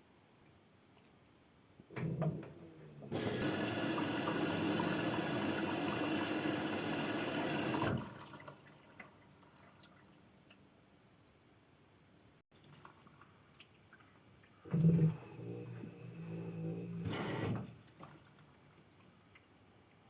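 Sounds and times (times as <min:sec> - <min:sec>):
faint water drips: 0:00.3 - 0:01.9, 0:08.0 - 0:11.6, 0:12.5 - 0:16.9, 0:17.8 - 0:20.0
water running hard: 0:03.1 - 0:08.1.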